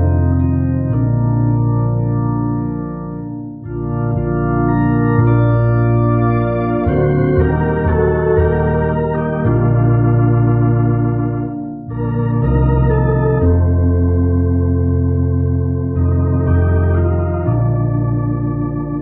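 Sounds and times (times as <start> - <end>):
organ playing sustained chords: 0.0 - 19.0.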